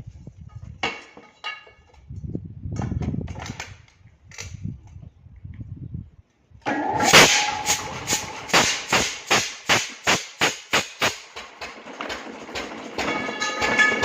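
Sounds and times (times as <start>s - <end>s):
engine starting and running: 6.6s - 14.0s.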